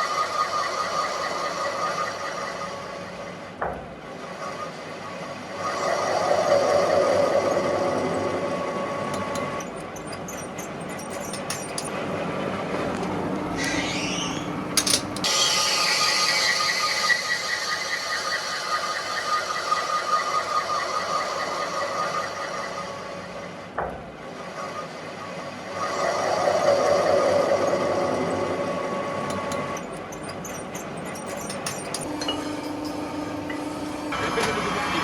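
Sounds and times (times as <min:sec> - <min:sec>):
factory machinery high whine: 0:00.0 - 0:10.5, 0:11.2 - 0:35.0
lower machine whine: 0:31.9 - 0:35.0.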